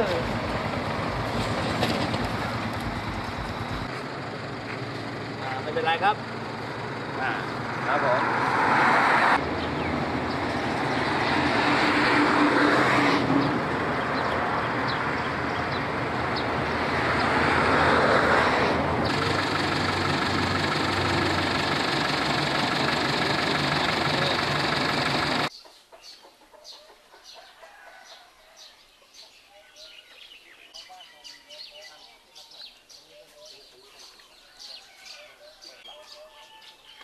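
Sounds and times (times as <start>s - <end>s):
engine hum: 0.0s - 25.5s
rushing road noise: 0.0s - 25.5s.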